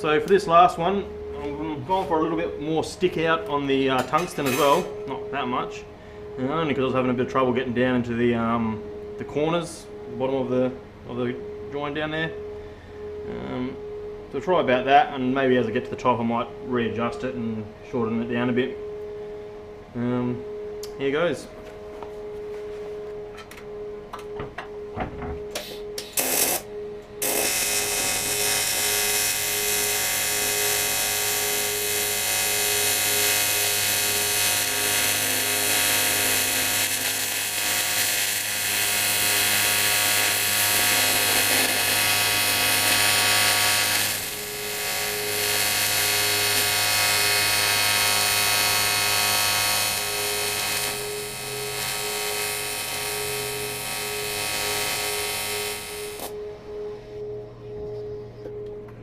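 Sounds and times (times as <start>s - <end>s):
welding arc striking clicks: 25.5s - 26.6s, 27.2s - 56.4s
welding arc buzzing: 25.5s - 56.4s.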